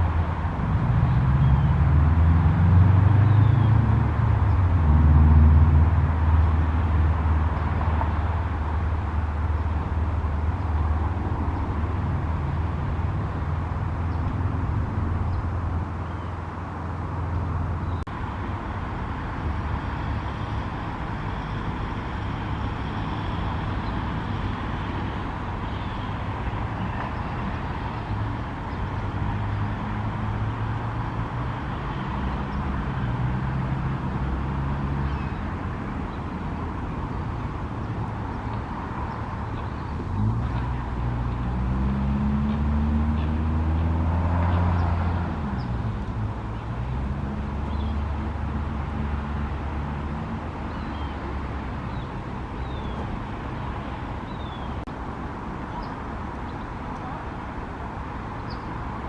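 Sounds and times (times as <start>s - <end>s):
road traffic engines: 0.0s - 59.0s
engine rising in pitch: 40.1s - 46.2s.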